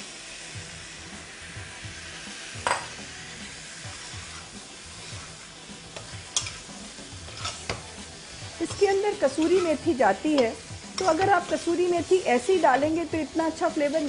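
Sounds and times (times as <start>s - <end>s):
chicken sizzling in a pan: 0.0s - 14.0s
metal ladle clinking and scraping pan: 6.0s - 8.0s, 8.6s - 11.8s.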